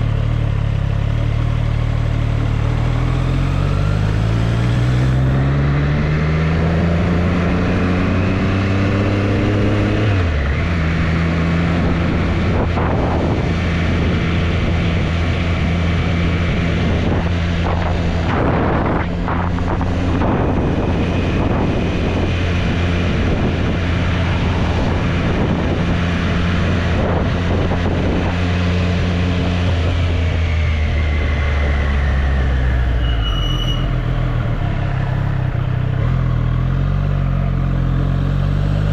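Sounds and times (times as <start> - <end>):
motorcycle engine accelerating: 0.0 - 38.9
wind rushing: 16.3 - 32.3.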